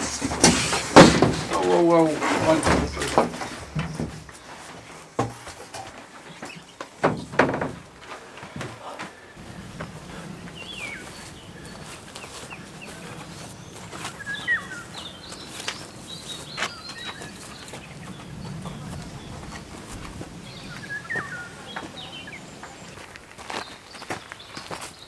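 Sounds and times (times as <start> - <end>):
small birds chirping: 0.9 - 5.2, 6.2 - 7.4, 8.8 - 25.0
knocks and clicks of work: 7.0 - 7.9.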